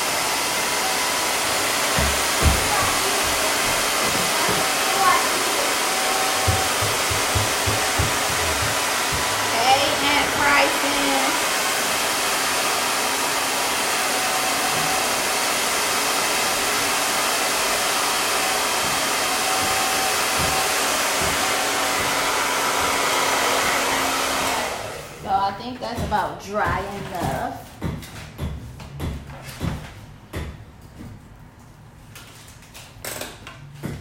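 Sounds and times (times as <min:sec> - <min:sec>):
hair dryer blowing: 0:00.0 - 0:26.2.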